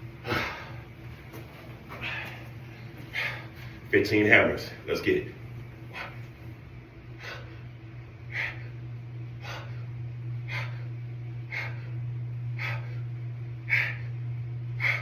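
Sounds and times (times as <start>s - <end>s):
low hum: 0.0s - 15.0s
man exhaling forcefully: 0.2s - 0.8s.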